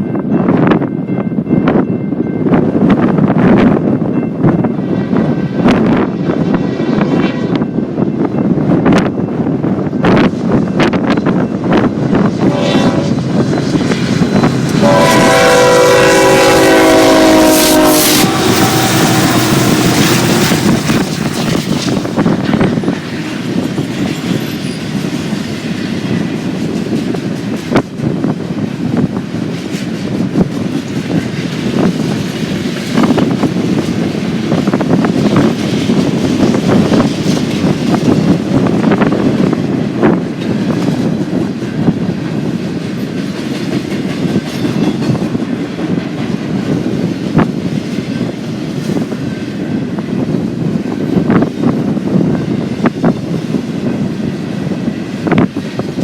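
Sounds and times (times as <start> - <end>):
train cars clacking: 0.0 - 56.0
train wheels rumbling on rail: 0.0 - 56.0.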